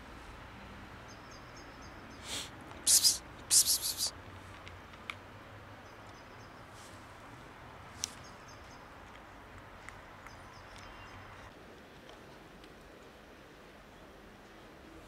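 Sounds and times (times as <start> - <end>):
faint background noise: 0.0 - 15.0
small bird chirping: 2.9 - 4.1.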